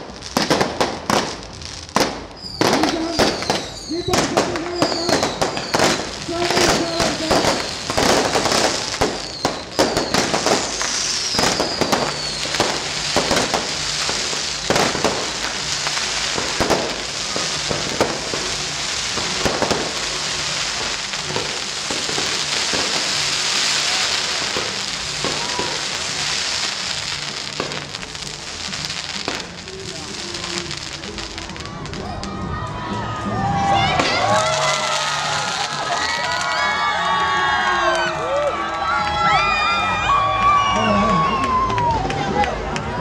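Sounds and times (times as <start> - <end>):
firework shells bursting: 0.0 - 31.4
fireworks crackling: 0.0 - 43.0
falling firework whistles: 0.4 - 32.3.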